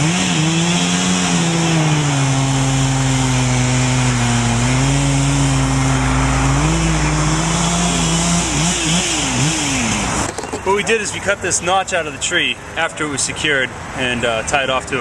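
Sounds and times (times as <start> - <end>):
chainsaw cutting wood: 0.0 - 10.8.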